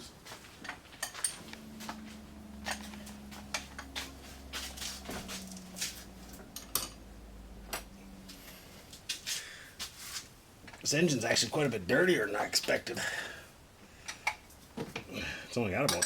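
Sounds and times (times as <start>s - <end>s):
steady low hum: 0.0s - 15.4s
metal tools clinking: 0.6s - 7.1s.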